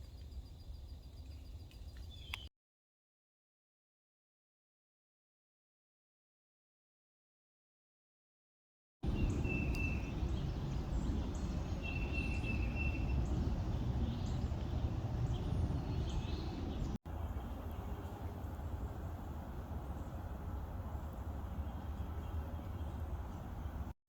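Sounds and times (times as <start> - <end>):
small birds chirping: 0.0 - 2.5, 9.0 - 23.9
low background rumble: 9.0 - 24.0.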